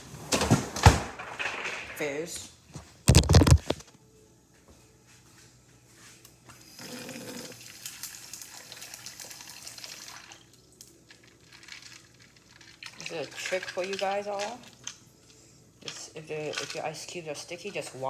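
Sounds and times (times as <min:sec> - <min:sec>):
tap water running over ice: 0:07.3 - 0:15.1.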